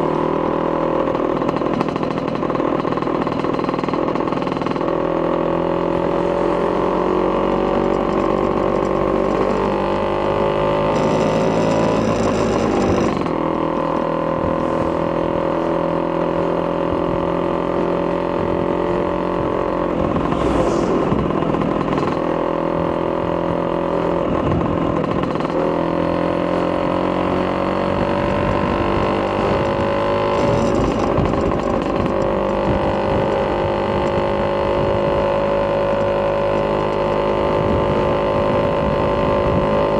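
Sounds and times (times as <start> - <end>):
scooter two-stroke engine running: 0.0 - 39.9
brief rush of noise: 20.1 - 21.5.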